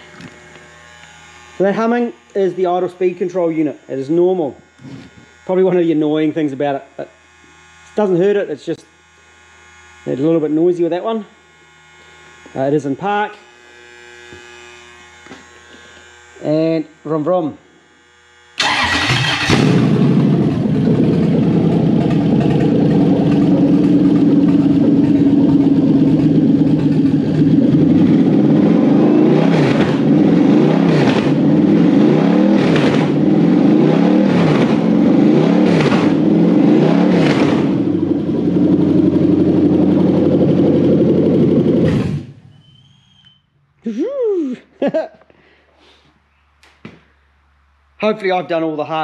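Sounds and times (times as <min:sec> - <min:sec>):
car engine starting and idling: 0:18.6 - 0:42.4
engine throttle blips: 0:18.6 - 0:42.5.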